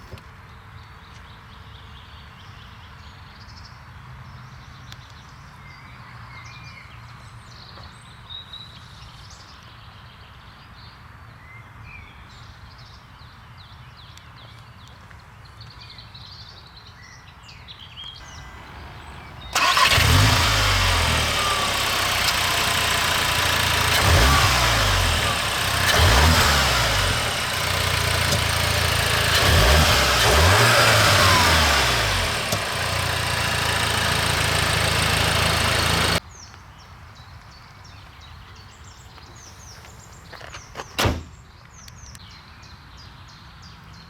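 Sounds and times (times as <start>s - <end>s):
car engine starting and revving: 18.2s - 36.2s.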